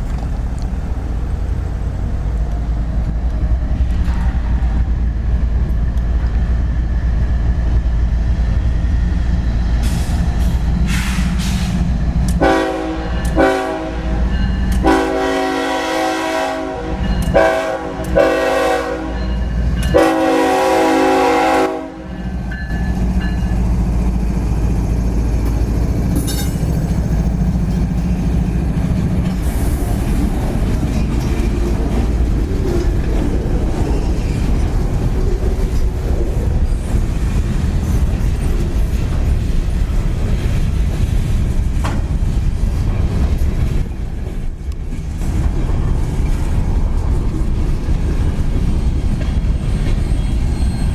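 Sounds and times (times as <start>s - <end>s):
deep engine rumble: 0.0s - 13.2s
wheels rattling on rails: 0.0s - 50.9s
locomotive air horn blasts: 12.4s - 22.3s.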